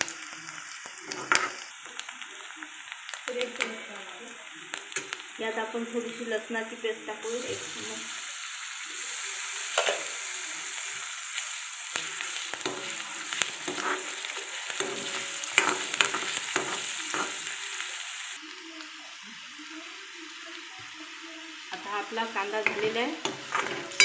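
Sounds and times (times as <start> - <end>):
onion sizzling in hot oil: 0.0 - 24.0
ladle scraping and knocking pan: 12.6 - 17.4, 22.7 - 24.0.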